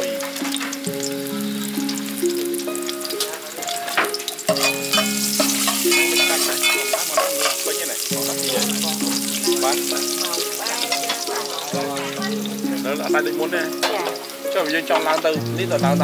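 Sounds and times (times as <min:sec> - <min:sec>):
aromatics sizzling in hot oil: 0:00.0 - 0:16.0
looping background tune: 0:00.0 - 0:16.0
metal ladle scraping a pot: 0:04.5 - 0:07.7.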